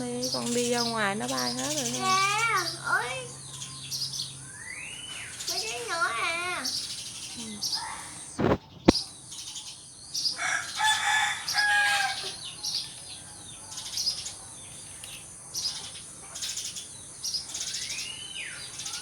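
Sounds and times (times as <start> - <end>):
sparrows chirping: 0.0 - 19.0
rooster crowing: 10.4 - 12.6.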